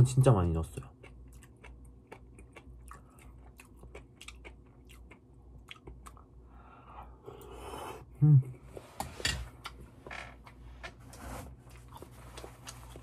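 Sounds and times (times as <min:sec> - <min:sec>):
person chewing with wet clicks: 0:00.7 - 0:06.4, 0:11.7 - 0:13.0.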